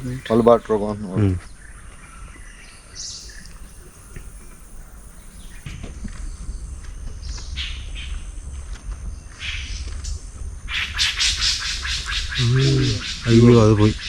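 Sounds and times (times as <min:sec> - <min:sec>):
high bird chirps: 0:00.0 - 0:00.7, 0:03.0 - 0:08.2
faint forest background: 0:00.0 - 0:14.0
low rumble: 0:03.2 - 0:13.0.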